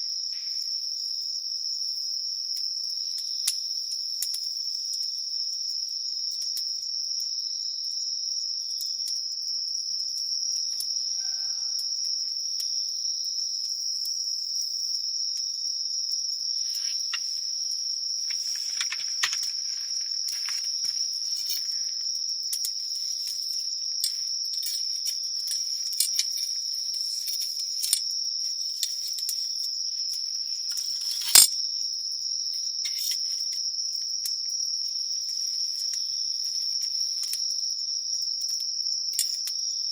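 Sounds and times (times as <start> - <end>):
crickets chirping: 0.0 - 39.9
campfire crackling: 16.7 - 22.1.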